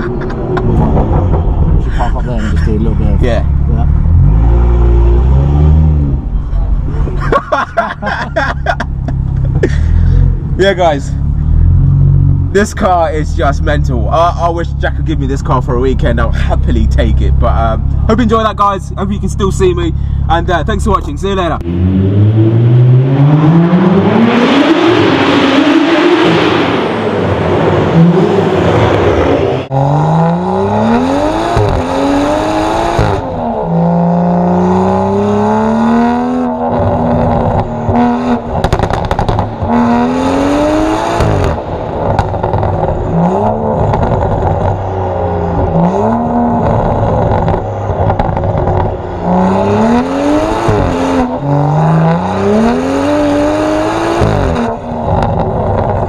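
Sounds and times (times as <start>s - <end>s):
car engine revving hard: 0.6s - 6.3s, 21.6s - 56.0s.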